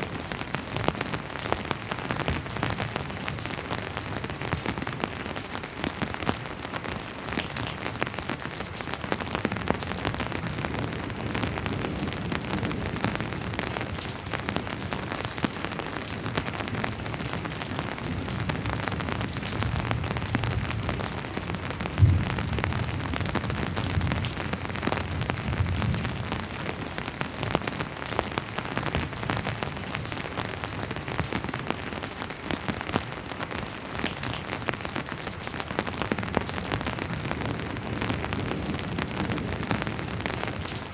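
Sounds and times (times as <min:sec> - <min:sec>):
rain drops pattering: 0:00.0 - 0:40.9
distant thunder rumble: 0:19.7 - 0:26.2.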